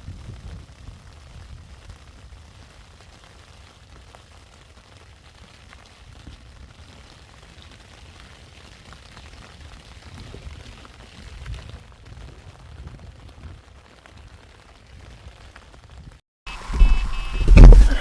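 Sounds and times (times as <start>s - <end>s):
wind buffeting microphone: 0.0s - 2.8s, 10.0s - 14.4s
light rain pattering: 0.0s - 16.2s.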